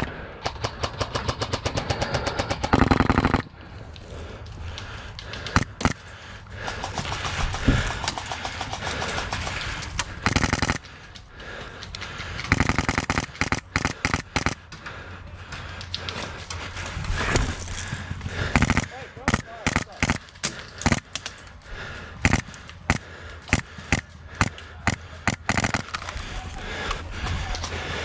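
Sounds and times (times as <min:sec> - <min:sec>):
airsoft rifle firing bursts: 0:00.0 - 0:03.5, 0:05.5 - 0:11.1, 0:12.3 - 0:14.7, 0:18.3 - 0:21.2, 0:22.2 - 0:26.1
background movement noise: 0:00.0 - 0:28.0.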